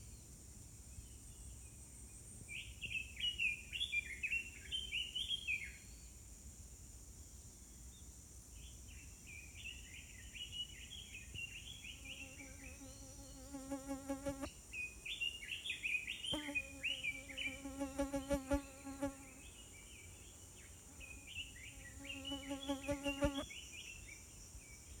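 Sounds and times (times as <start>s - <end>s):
flying insect buzzing: 12.0s - 14.5s, 16.3s - 19.5s, 20.9s - 23.5s.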